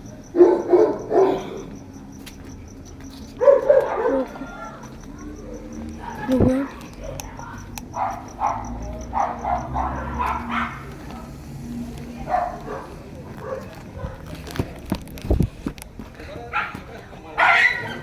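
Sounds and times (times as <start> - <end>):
dog barking and yipping: 0.4 - 1.5, 3.4 - 4.8, 7.8 - 11.0, 12.2 - 14.3, 16.6 - 16.8, 17.4 - 18.0.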